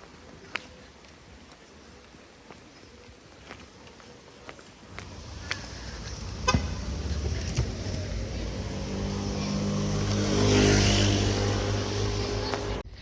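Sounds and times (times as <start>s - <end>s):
vehicle engine passing by: 4.9s - 12.8s.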